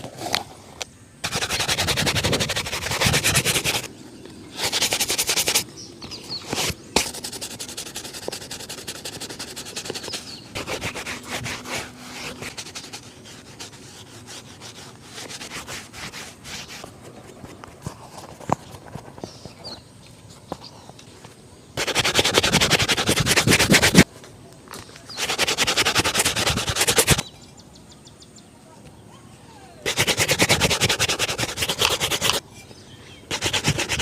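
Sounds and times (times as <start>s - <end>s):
brushing shoe leather: 1.2s - 3.9s, 4.5s - 19.3s, 21.8s - 24.1s, 25.1s - 27.3s, 29.8s - 32.4s, 33.3s - 34.0s.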